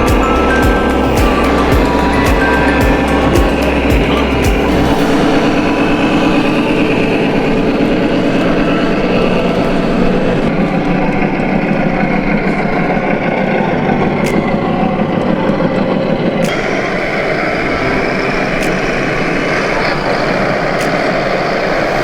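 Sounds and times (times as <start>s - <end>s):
model truck engine idling: 0.0s - 22.0s.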